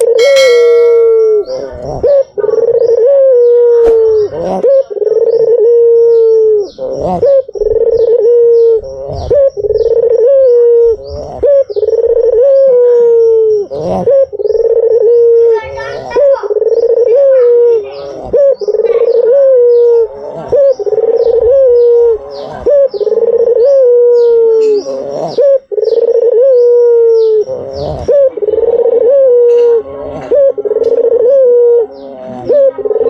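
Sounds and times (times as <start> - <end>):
faint high chirps: 0.0 - 1.7
dove cooing: 0.0 - 33.0.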